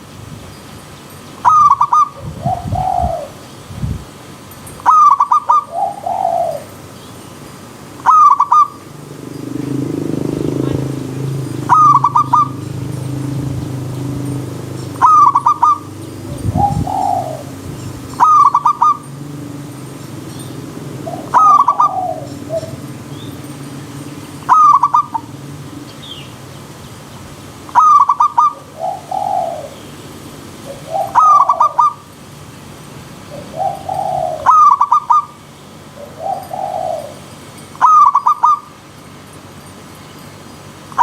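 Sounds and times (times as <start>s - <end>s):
dove stuttering call: 1.4s - 3.4s, 4.8s - 6.9s, 8.0s - 26.4s, 27.7s - 32.1s, 33.3s - 38.8s
soft low dove coos: 9.7s - 19.8s, 20.6s - 23.6s, 30.6s - 32.0s, 33.3s - 35.3s.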